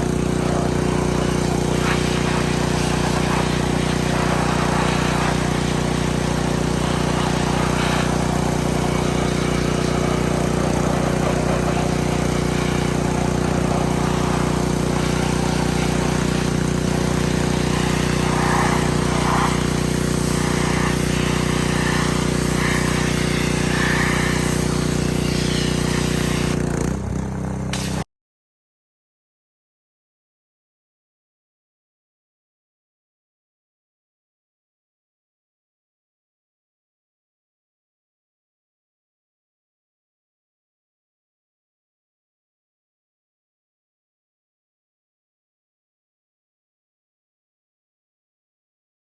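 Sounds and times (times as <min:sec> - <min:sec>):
pressure washer engine humming: 0:00.0 - 0:28.0
hiss of spray: 0:01.7 - 0:06.5, 0:17.6 - 0:26.6, 0:27.8 - 0:28.0.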